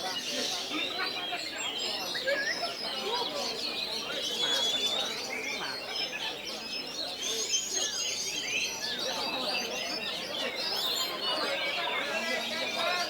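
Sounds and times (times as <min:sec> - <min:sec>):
birds singing in chorus: 0:00.0 - 0:13.0.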